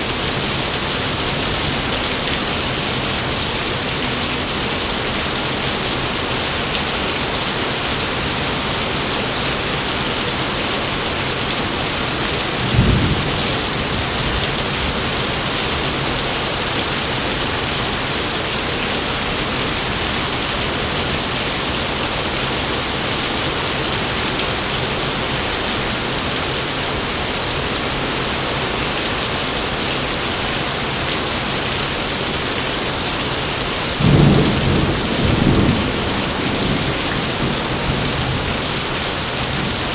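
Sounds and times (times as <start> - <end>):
heavy rain falling: 0.0 - 39.9
thunder rumbling: 12.6 - 15.2, 34.0 - 39.1.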